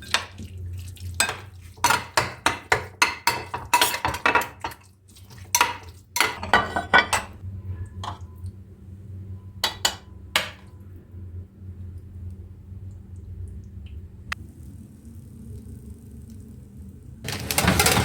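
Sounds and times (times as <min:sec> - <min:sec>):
metal utensils clinking on cookware: 0:01.2 - 0:07.4, 0:08.0 - 0:08.2, 0:09.6 - 0:10.7, 0:17.3 - 0:18.0
steady low hum: 0:06.4 - 0:17.3.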